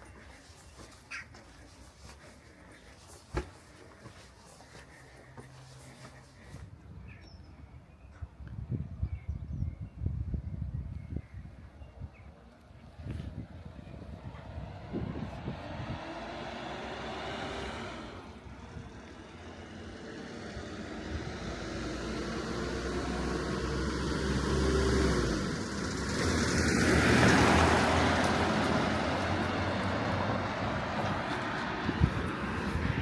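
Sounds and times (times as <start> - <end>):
vehicle engine hum: 12.5 - 33.0
vehicle passing close: 13.1 - 33.0.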